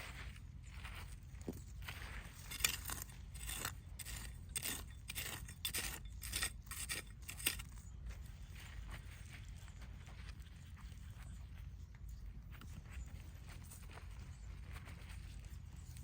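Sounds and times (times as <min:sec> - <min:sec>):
digging scrapes in soil: 0:01.0 - 0:11.4.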